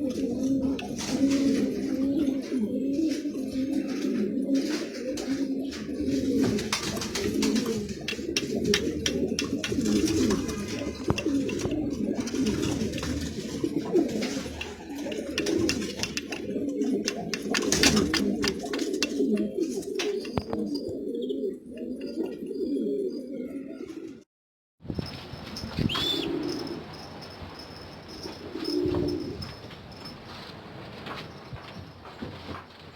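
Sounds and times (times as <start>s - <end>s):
pigeons cooing: 0.0s - 24.2s, 25.7s - 29.6s
sharp clicks: 8.0s - 11.9s, 14.5s - 20.6s.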